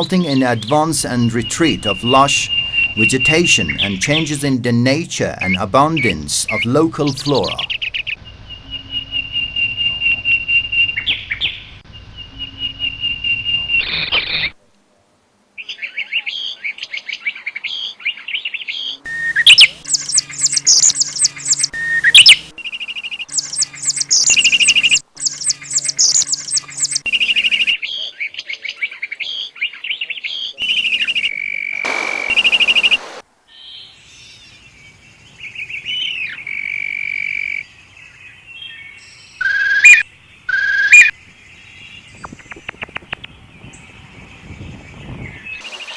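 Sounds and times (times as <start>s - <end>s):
birds chirping and twittering: 0.0s - 14.6s, 15.6s - 45.9s
high bird trill: 0.2s - 4.4s, 15.6s - 28.4s, 29.0s - 45.6s.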